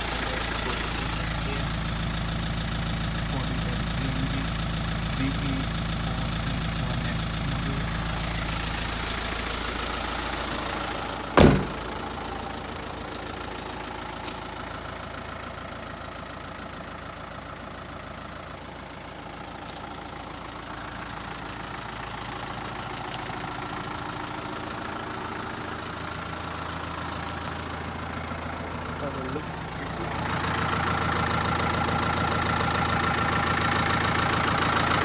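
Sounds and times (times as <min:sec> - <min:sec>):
diesel bus engine idling: 0:00.0 - 0:35.0
sharp bang: 0:11.4 - 0:12.0.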